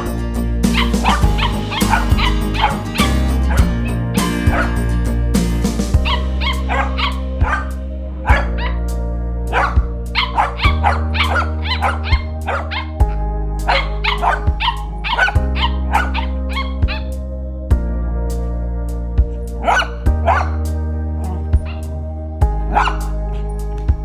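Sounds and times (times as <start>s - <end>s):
background music with low notes: 0.0s - 24.0s
dog barking in high yaps: 0.7s - 3.7s, 4.5s - 4.8s, 6.0s - 8.8s, 9.5s - 13.0s, 13.7s - 17.1s, 19.6s - 20.6s, 22.7s - 23.5s.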